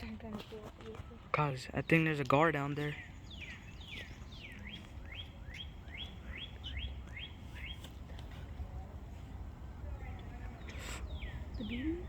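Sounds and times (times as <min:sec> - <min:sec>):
songbird whistling notes: 0:03.0 - 0:08.0.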